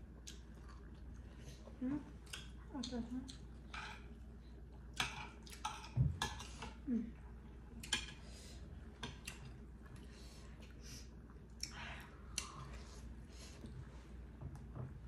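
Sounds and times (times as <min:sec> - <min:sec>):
wet chewing sounds: 0:00.0 - 0:06.8, 0:08.8 - 0:13.8.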